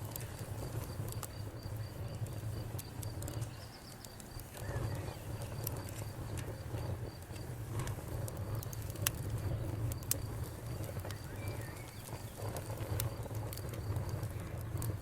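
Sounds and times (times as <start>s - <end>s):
campfire crackling and popping: 0.0s - 15.0s
bird chirp: 3.3s - 5.5s, 10.4s - 13.3s.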